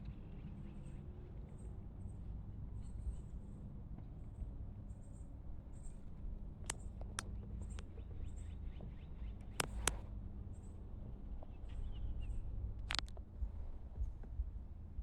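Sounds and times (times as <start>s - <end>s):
steady low rumble: 0.0s - 15.0s
sharp clicks and knocks: 9.4s - 10.0s, 12.9s - 13.2s.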